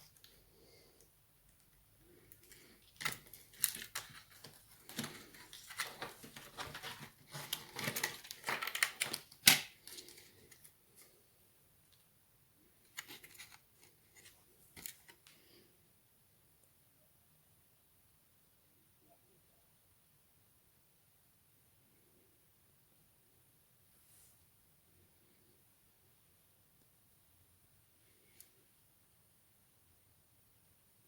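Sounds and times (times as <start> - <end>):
small clicks and scrapes: 1.5 - 11.2, 12.8 - 15.4.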